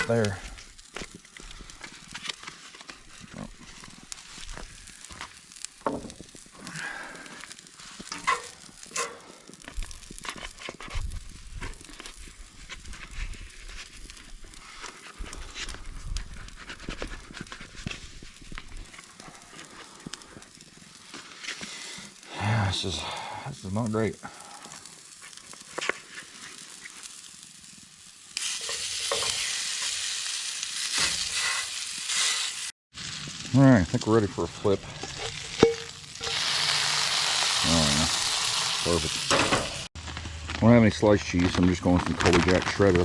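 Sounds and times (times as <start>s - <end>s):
burger patties sizzling: 0.0s - 43.0s
spatula scraping pan: 8.0s - 9.2s, 28.4s - 29.6s.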